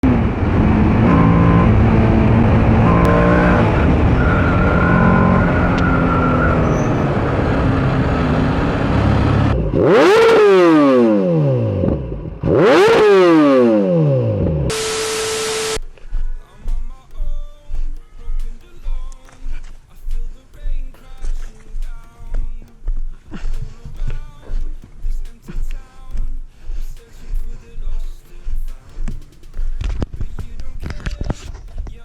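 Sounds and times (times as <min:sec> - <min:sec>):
motorcycle engine revving: 0:00.0 - 0:15.9.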